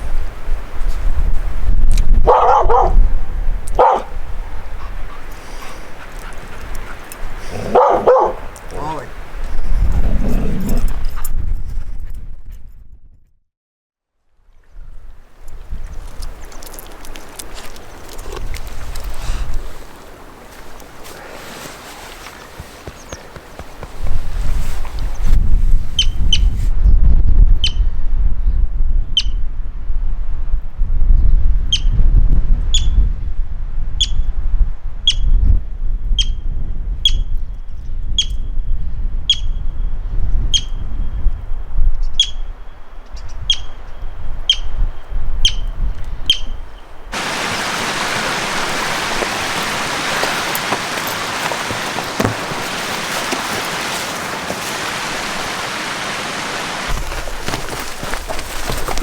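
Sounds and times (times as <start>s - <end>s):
wind rumbling on microphone: 0.0s - 13.4s, 14.4s - 59.0s
steady rushing hiss: 47.1s - 59.0s.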